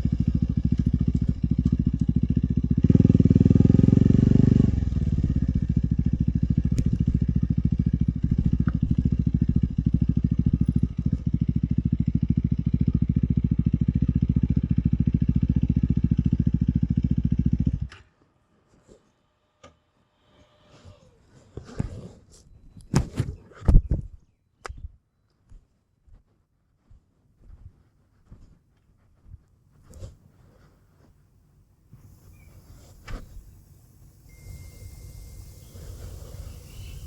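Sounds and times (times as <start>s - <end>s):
motorcycle engine running: 0.0s - 17.9s, 31.9s - 37.0s.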